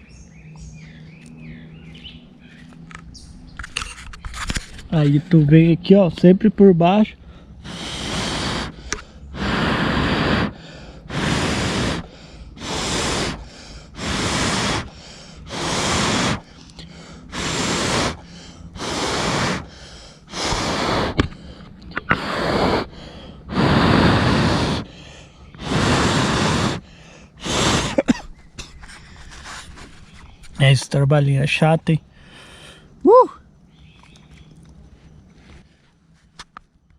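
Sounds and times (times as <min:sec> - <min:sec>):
person blowing on embers: 0:07.3 - 0:30.6.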